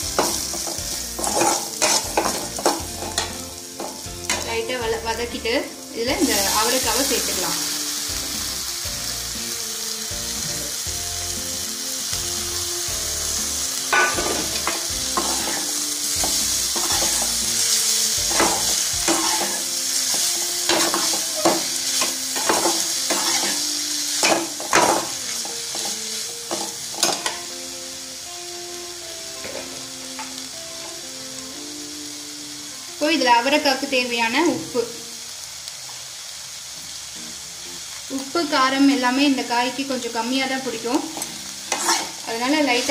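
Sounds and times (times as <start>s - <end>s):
beans sizzling in oil: 0.0s - 42.9s
spatula scraping and knocking pan: 0.1s - 4.5s, 13.9s - 23.6s, 41.1s - 42.2s.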